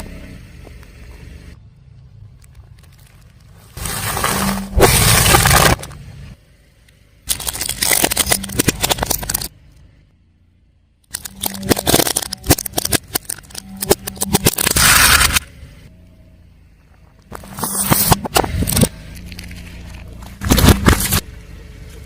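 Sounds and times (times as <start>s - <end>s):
car engine hum: 0.0s - 22.0s
tyre crushing crunchy objects: 2.8s - 6.0s, 11.1s - 15.4s, 17.3s - 21.3s.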